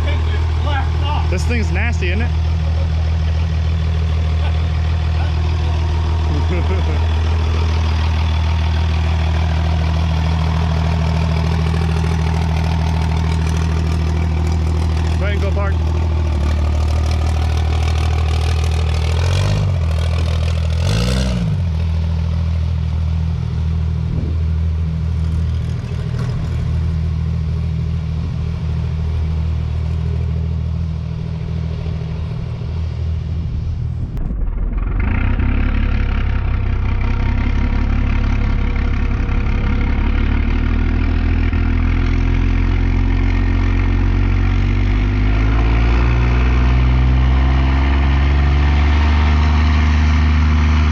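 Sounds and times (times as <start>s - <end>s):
diesel truck engine idling and revving: 0.0s - 50.9s.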